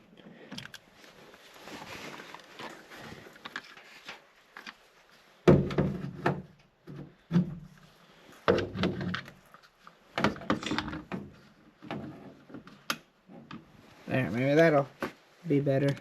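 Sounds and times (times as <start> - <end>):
handling rattle and knocks: 10.2 - 12.8.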